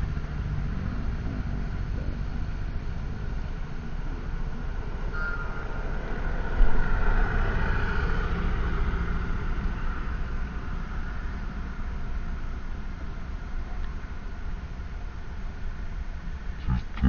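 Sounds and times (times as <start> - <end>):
vehicle passing by: 0.0 - 12.0
vehicle engine low rumble: 0.0 - 17.0.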